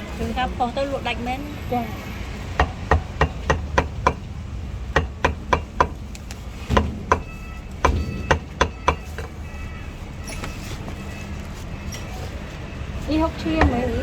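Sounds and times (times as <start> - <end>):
cleaver chopping meat: 5.0 - 9.4.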